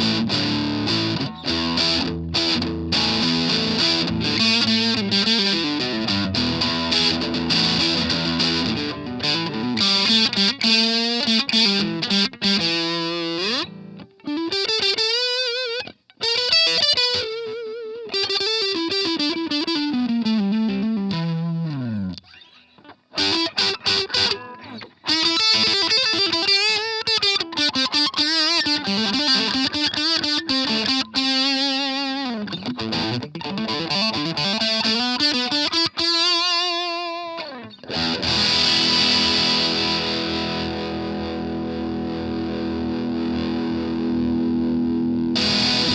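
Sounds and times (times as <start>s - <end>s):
distorted electric guitar lead: 0.0s - 45.9s.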